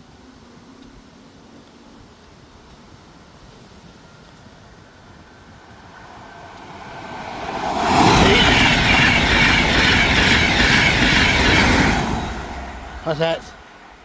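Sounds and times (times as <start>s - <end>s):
train passing: 3.1s - 14.0s.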